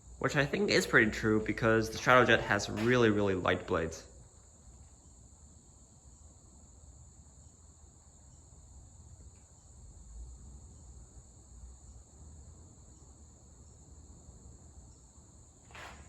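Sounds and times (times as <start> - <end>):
ceiling fans air rush: 0.0 - 8.2.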